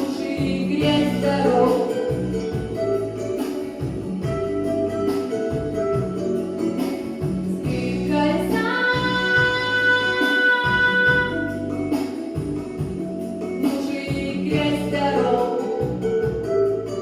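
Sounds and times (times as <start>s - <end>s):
woman singing pop song: 0.0s - 2.5s, 7.4s - 11.7s, 13.6s - 16.4s
backing track with pulsing bass: 0.0s - 17.0s.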